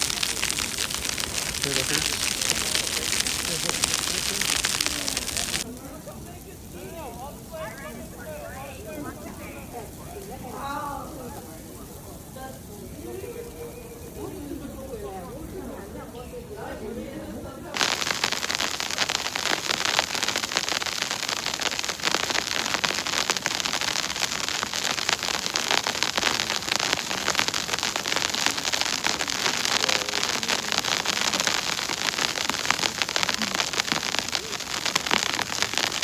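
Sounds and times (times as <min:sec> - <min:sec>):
rain pattering on a surface: 0:00.0 - 0:36.0.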